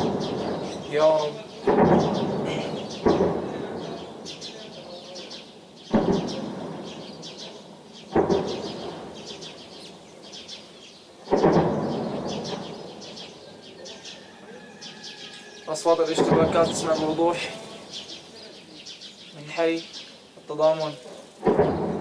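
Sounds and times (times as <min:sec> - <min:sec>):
distant explosions with rumbling echo: 0:00.0 - 0:04.6, 0:05.9 - 0:10.0, 0:11.1 - 0:13.4, 0:15.9 - 0:18.2, 0:21.4 - 0:22.0
birds chirping: 0:00.0 - 0:22.0.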